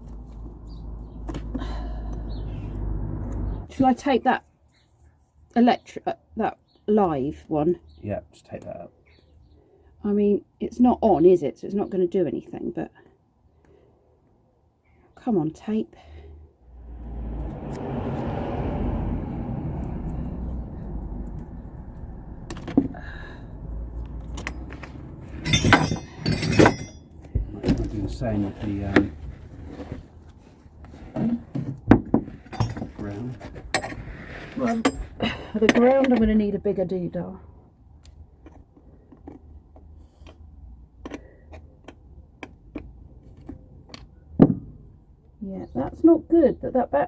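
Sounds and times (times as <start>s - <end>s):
small handling clicks and clinks: 24.2s - 27.3s
hand tools clicking and tapping: 41.0s - 44.2s.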